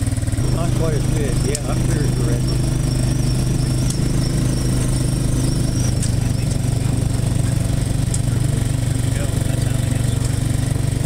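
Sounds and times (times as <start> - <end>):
small engine running: 0.0 - 11.0
thin high whine: 0.4 - 8.6.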